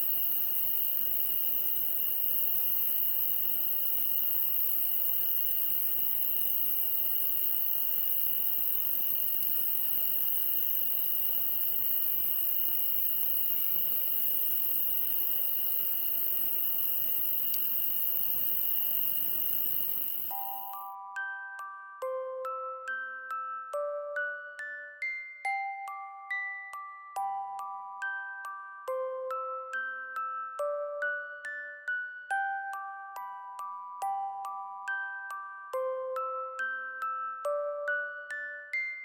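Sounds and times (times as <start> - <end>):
faint campfire crackles: 0.0 - 20.7
crickets trilling: 0.0 - 21.3.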